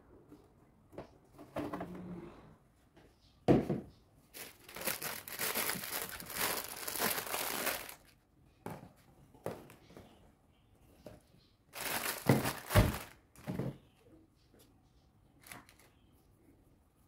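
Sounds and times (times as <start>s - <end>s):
plastic crinkling and rustling: 4.3s - 8.2s, 11.7s - 13.7s, 15.4s - 15.9s.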